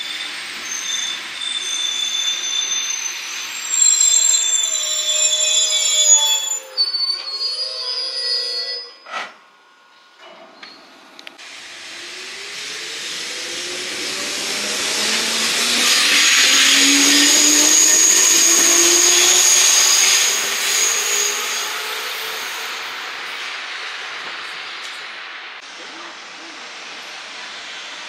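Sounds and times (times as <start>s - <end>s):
electric train passing: 0.0s - 28.0s
train motor hum: 9.0s - 20.7s.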